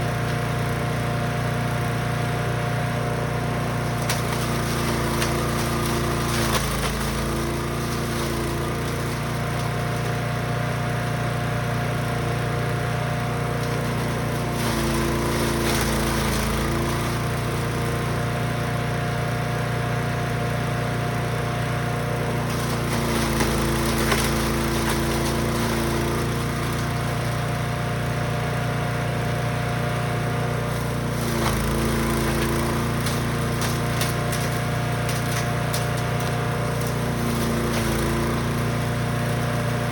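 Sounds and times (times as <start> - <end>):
wood chipper engine running: 0.0 - 39.9
crackling of material being chipped: 31.2 - 38.2.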